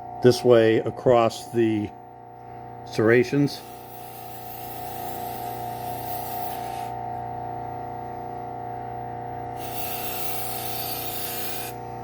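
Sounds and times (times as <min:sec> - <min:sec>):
belt sander humming and whining: 0:03.0 - 0:07.1, 0:09.6 - 0:12.0
knife grinding on sanding belt: 0:03.6 - 0:07.0, 0:09.6 - 0:11.8.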